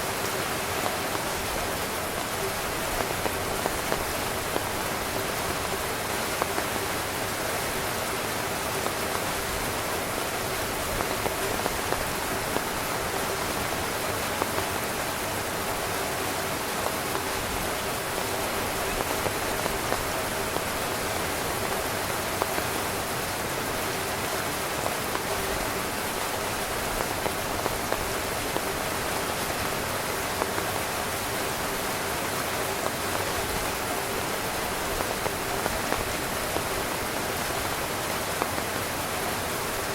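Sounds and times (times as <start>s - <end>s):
heavy rain drumming on a tent: 0.0s - 39.9s.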